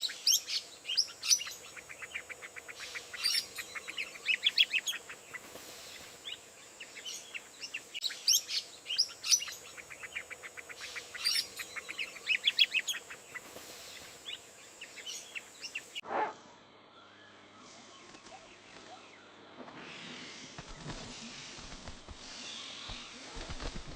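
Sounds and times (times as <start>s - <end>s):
small birds chirping and trilling: 0.0s - 16.0s.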